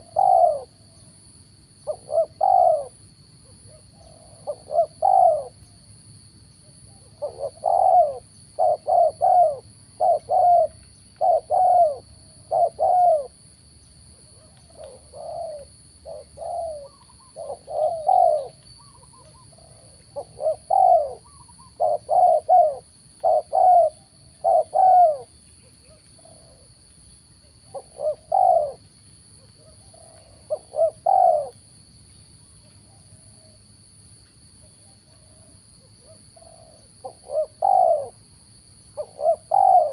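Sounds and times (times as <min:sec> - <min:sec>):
doves cooing: 0:00.0 - 0:00.9, 0:01.8 - 0:03.0, 0:03.6 - 0:05.7, 0:06.9 - 0:13.5, 0:14.3 - 0:26.8, 0:27.6 - 0:28.9, 0:29.6 - 0:31.6, 0:35.2 - 0:38.2, 0:39.0 - 0:39.9.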